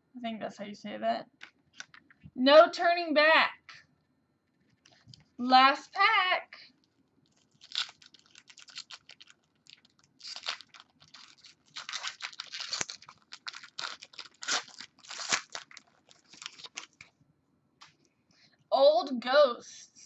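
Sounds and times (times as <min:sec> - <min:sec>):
card pack wrapper tearing and crinkling: 0:07.3 - 0:17.1.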